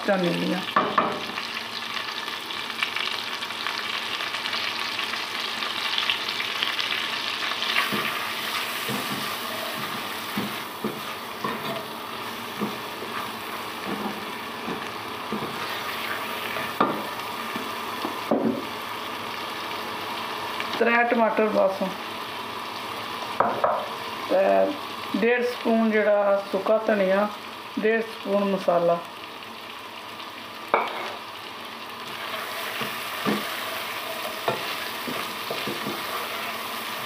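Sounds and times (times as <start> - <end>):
butter sizzling in a pot: 0.0 - 37.0
spatula knocking and scraping pan: 7.8 - 11.9, 12.5 - 15.8, 16.6 - 17.1, 32.8 - 33.6, 34.2 - 36.5.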